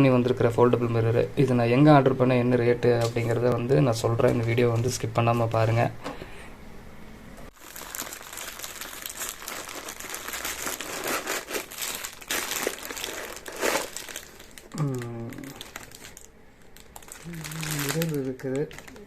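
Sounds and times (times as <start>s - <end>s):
plastic packaging crinkling: 7.5s - 19.0s.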